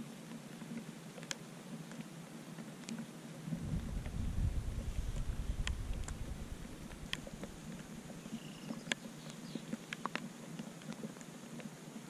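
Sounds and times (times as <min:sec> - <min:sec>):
faint rain hiss: 0:00.0 - 0:12.0
raindrops tapping on camera: 0:03.5 - 0:09.1.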